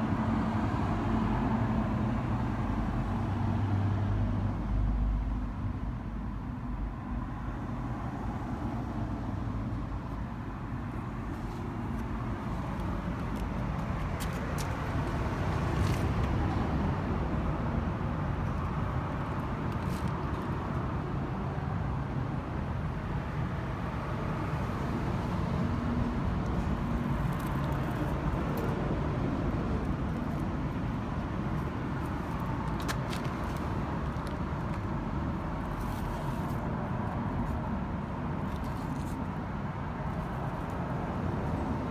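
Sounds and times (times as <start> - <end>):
car engine rumbling: 26.0 - 41.9.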